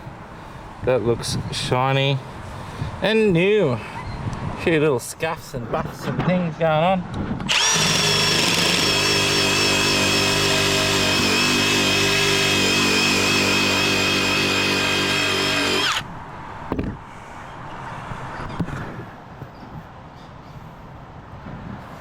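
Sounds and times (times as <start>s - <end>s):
wire brush power tool on metal: 7.5s - 16.1s.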